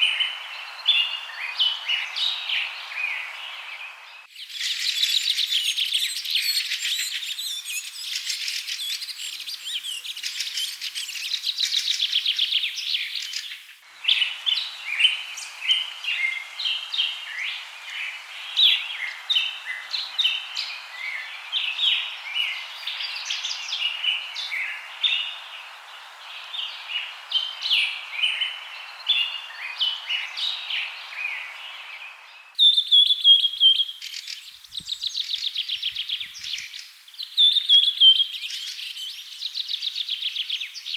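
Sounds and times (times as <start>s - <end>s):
steady hiss: 0.0s - 32.6s
rapid trilling bird chorus: 0.0s - 40.9s.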